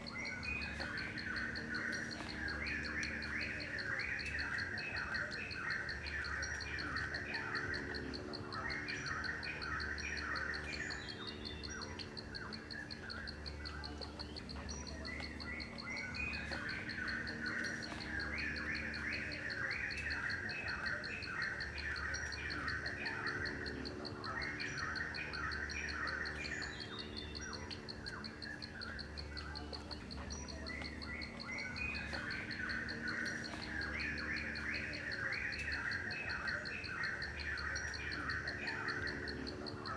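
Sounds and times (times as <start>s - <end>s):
birds chirping: 0.0s - 39.9s
fast-pulsing insect trill: 0.0s - 39.9s.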